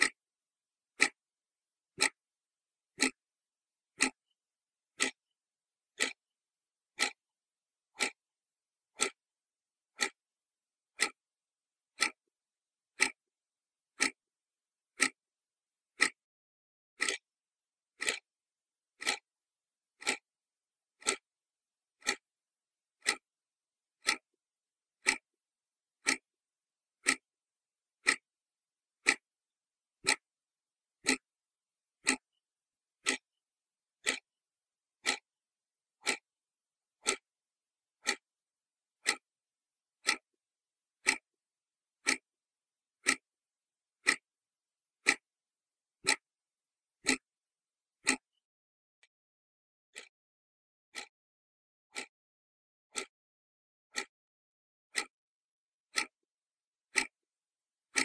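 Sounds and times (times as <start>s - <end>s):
clock ticking: 0.0s - 0.2s, 1.0s - 1.2s, 1.9s - 2.2s, 2.9s - 3.2s, 3.9s - 5.2s, 5.9s - 6.2s, 7.0s - 7.2s, 7.9s - 8.2s, 8.9s - 9.2s, 9.9s - 10.2s, 10.9s - 11.2s, 12.0s - 12.2s, 12.9s - 13.2s, 14.0s - 14.2s, 15.0s - 15.2s, 16.0s - 16.2s, 17.0s - 17.2s, 18.0s - 18.3s, 19.0s - 19.3s, 20.0s - 20.2s, 21.0s - 21.3s, 22.0s - 22.2s, 23.0s - 23.2s, 24.0s - 24.4s, 25.0s - 25.3s, 26.0s - 26.3s, 27.0s - 27.3s, 28.0s - 28.2s, 29.0s - 29.2s, 30.0s - 30.3s, 31.0s - 31.3s, 32.0s - 32.4s, 33.0s - 33.4s, 34.0s - 34.3s, 35.0s - 35.3s, 36.0s - 36.3s, 37.0s - 37.3s, 38.0s - 38.3s, 39.0s - 39.3s, 40.0s - 40.4s, 41.0s - 41.3s, 42.0s - 42.3s, 43.0s - 43.3s, 44.0s - 44.3s, 45.0s - 45.3s, 46.0s - 46.3s, 47.0s - 47.3s, 48.0s - 48.4s, 49.9s - 50.1s, 50.9s - 51.1s, 51.9s - 52.1s, 52.9s - 53.1s, 53.9s - 54.1s, 54.9s - 55.2s, 55.9s - 56.2s, 56.9s - 57.2s.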